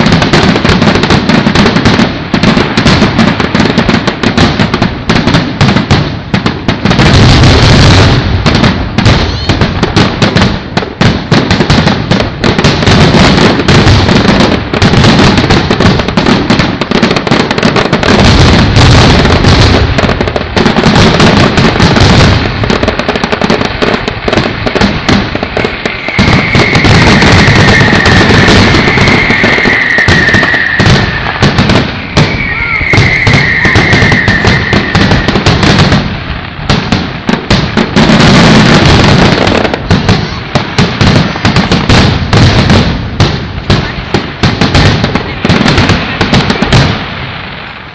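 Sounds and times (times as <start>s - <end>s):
fireworks bangs and crackles: 0.0s - 47.9s
high whistle sliding down: 26.0s - 31.4s, 32.0s - 35.3s.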